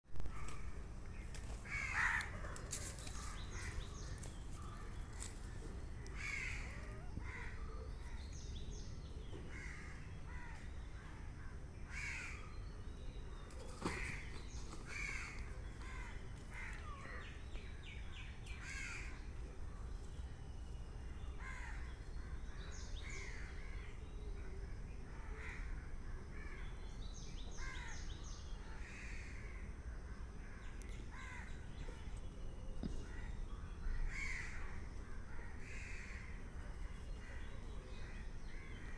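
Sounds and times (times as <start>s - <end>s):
birds calling: 0.3s - 20.0s.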